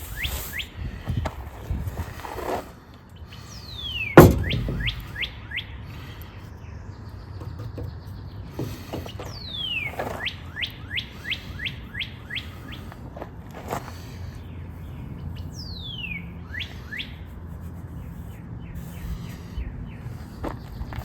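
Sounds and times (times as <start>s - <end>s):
songbird singing: 0.0s - 1.3s, 3.0s - 21.0s
sharp knock: 4.2s - 5.2s.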